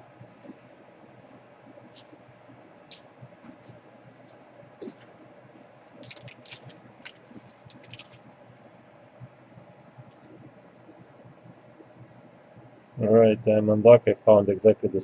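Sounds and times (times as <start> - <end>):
hard parts clicking and rattling: 6.0 - 8.2.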